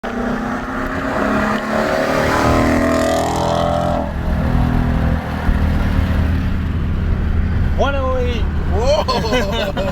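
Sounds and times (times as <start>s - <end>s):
car engine revving: 0.0s - 9.9s.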